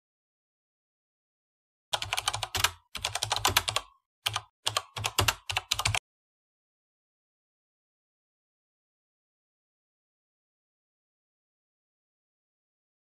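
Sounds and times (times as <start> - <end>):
computer keyboard typing: 2.0 - 6.0.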